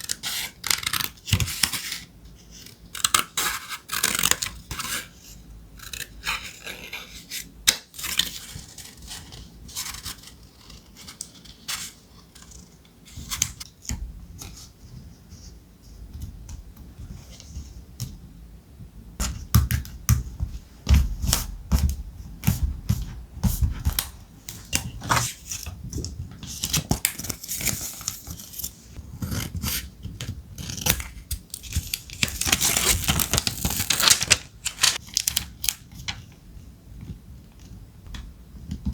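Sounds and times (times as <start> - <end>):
paper rustling and scraping: 30.7 - 36.1.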